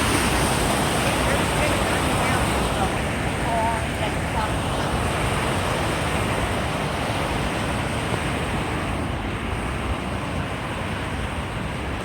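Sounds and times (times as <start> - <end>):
falling water rushing: 0.0 - 8.4.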